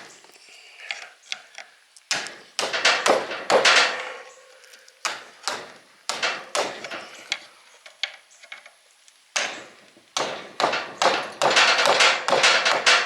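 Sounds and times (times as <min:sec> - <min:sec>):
hammer striking metal punch: 0:10.2 - 0:13.0.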